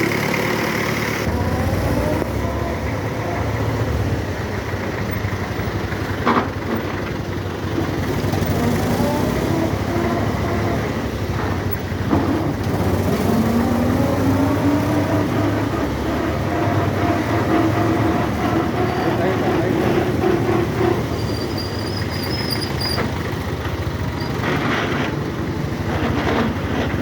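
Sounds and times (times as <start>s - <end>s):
whining tone: 0.0s - 6.0s
tractor diesel engine running: 0.0s - 27.0s.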